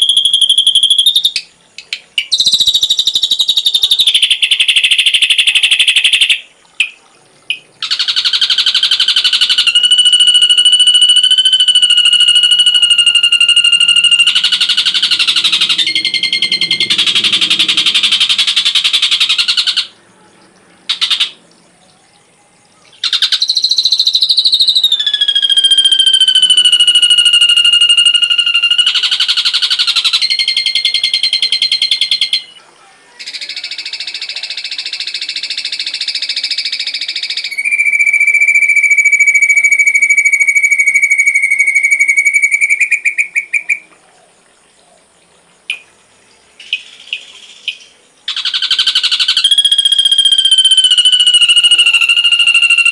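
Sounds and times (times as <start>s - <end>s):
bird whistles: 0.0s - 1.4s, 2.2s - 19.9s, 23.0s - 32.6s, 35.6s - 43.8s, 46.7s - 52.9s
bird song with buzzy trills: 0.0s - 32.6s.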